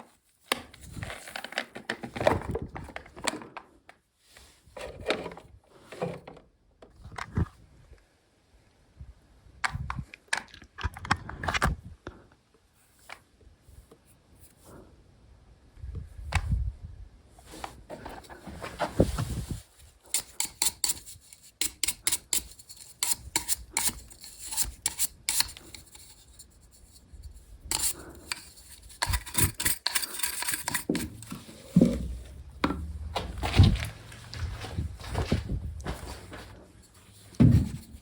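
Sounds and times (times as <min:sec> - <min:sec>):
hand tools and metal clinking: 0:20.1 - 0:27.0, 0:27.7 - 0:38.0
metal scraping: 0:27.7 - 0:38.0.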